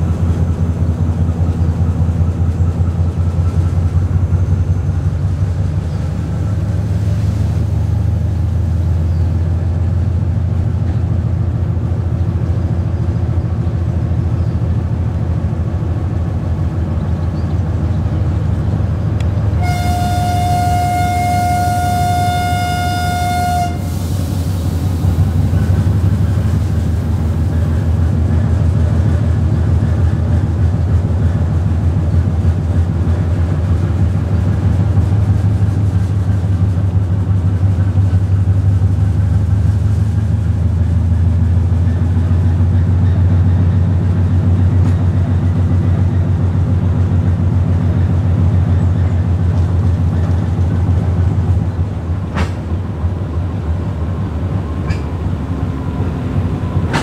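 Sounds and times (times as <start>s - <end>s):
train rumbling on rails: 0.0s - 57.0s
train horn blast: 19.6s - 24.2s.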